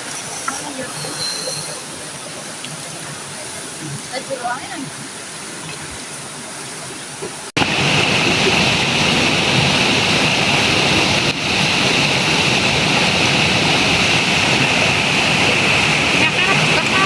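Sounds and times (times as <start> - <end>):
flowing river water: 0.0 - 17.0.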